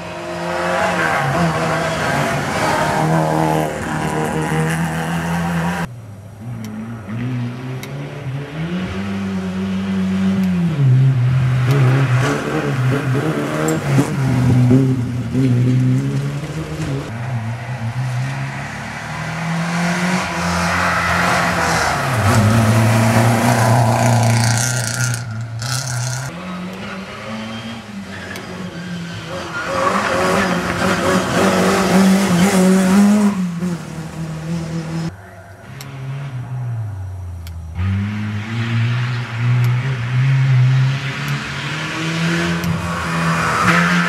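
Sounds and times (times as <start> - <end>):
rally car engines revving: 0.0 - 44.0
tyre and gravel noise: 20.9 - 27.0.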